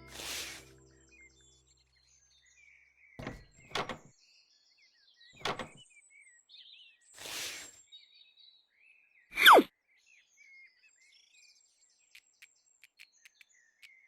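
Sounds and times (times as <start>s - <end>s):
small birds chirping: 11.1s - 14.0s.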